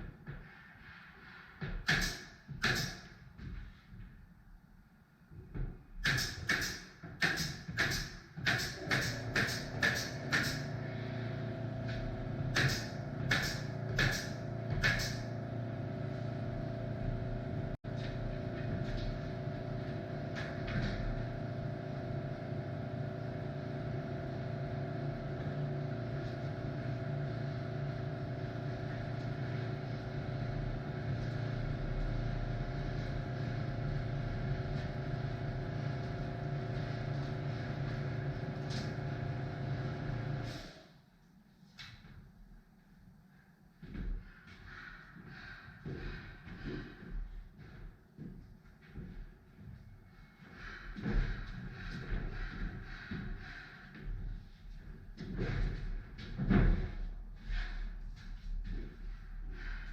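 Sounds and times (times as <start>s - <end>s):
steady mechanical hum: 6.1s - 59.9s.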